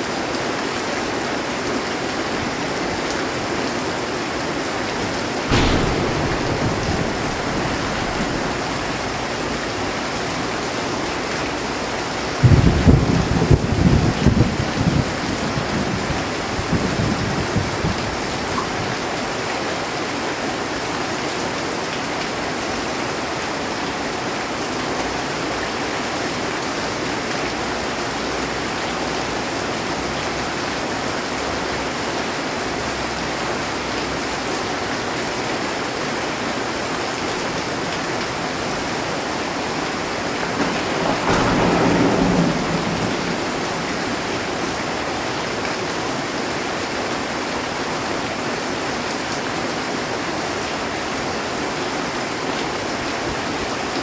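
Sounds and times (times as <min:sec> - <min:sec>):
heavy rain on a metal roof: 0:00.0 - 0:54.0
thunder rumbling: 0:05.0 - 0:18.0, 0:37.5 - 0:46.7.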